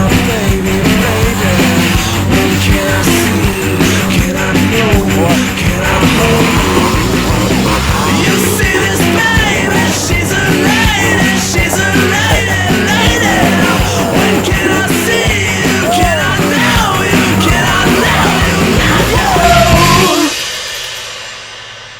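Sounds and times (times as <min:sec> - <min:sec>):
rock music with shouted vocals: 0:00.0 - 0:20.4.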